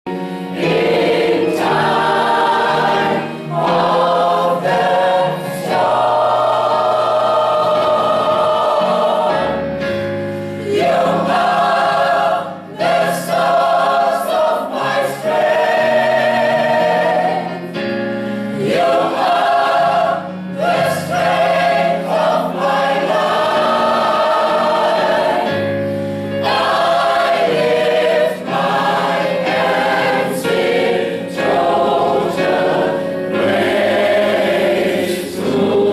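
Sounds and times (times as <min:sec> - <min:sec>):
choir singing: 0:00.1 - 0:35.9.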